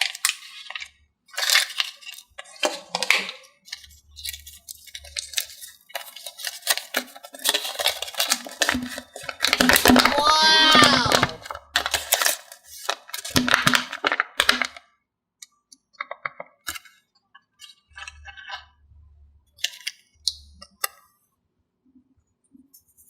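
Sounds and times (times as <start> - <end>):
small hard objects knocking and rattling: 5.1 - 10.3, 11.1 - 14.8.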